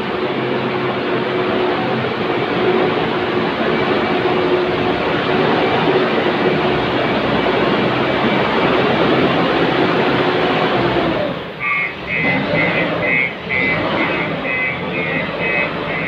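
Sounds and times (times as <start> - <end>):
backhoe diesel engine running: 0.0 - 16.0
short high beeping tones: 11.6 - 16.0.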